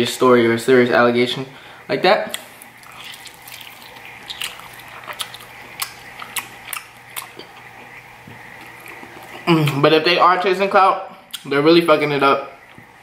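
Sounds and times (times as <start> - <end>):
faint low hum: 0.0 - 13.0
person chewing with wet smacks: 2.3 - 9.9, 11.3 - 11.5.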